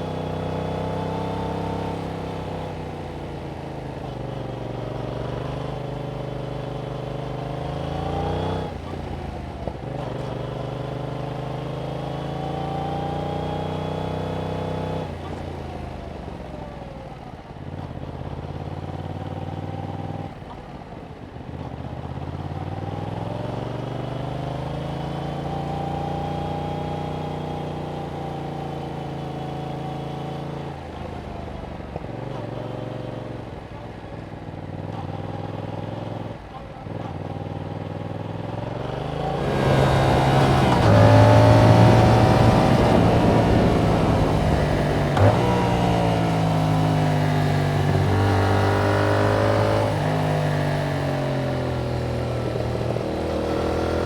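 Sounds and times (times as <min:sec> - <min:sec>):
motorcycle engine revving: 0:34.6 - 0:54.0.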